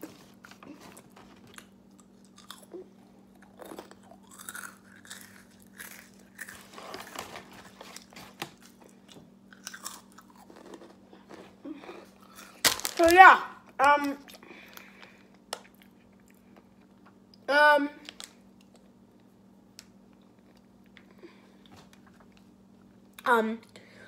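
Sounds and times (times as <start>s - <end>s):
person chewing food: 0.0s - 12.7s.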